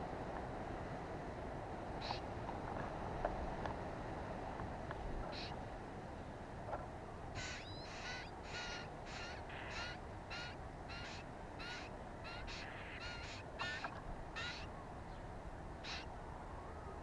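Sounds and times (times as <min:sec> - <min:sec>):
bird harsh calls: 0:07.4 - 0:14.7.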